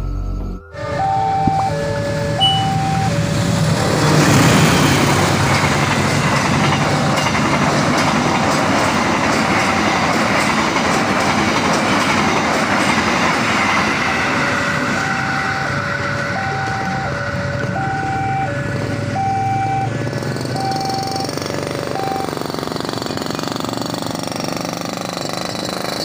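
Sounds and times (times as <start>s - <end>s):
crossing warning signal tones: 0.0s - 8.1s, 13.7s - 22.5s
train wheels rushing on rail: 0.8s - 26.0s.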